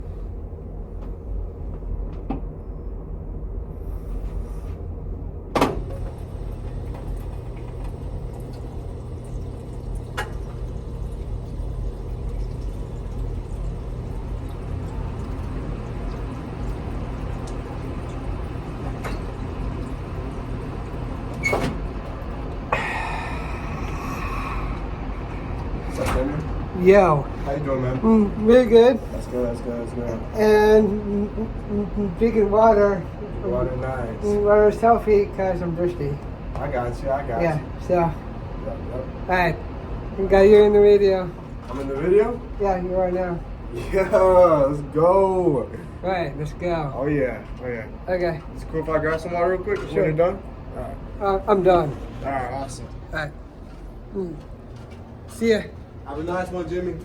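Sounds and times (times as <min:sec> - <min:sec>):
low background rumble: 0:00.0 - 0:35.6.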